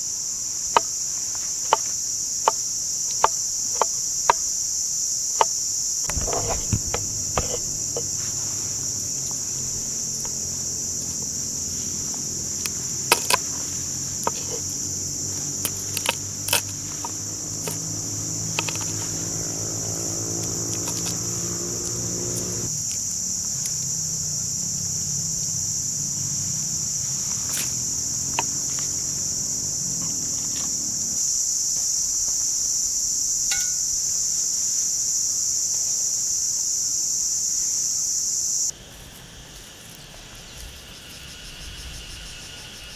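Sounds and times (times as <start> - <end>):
insects chirping chorus: 0.0 - 42.9
sharp clicks: 6.1 - 10.4
low hum: 6.1 - 22.7.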